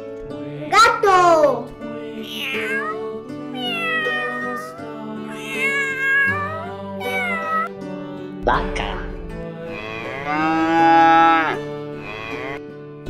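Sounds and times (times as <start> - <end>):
background music: 0.0 - 13.0
cat meowing: 2.1 - 7.8, 11.0 - 12.6.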